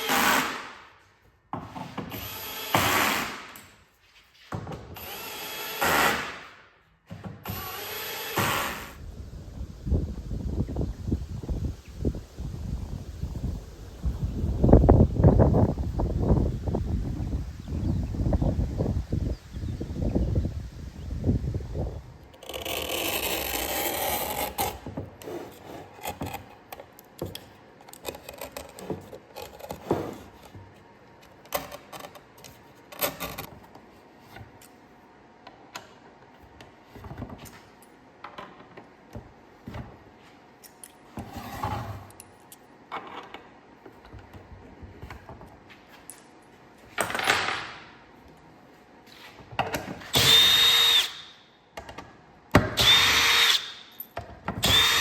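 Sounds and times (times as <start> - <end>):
small power tool whining: 50.1 - 51.3, 52.8 - 53.8, 54.6 - 55.0.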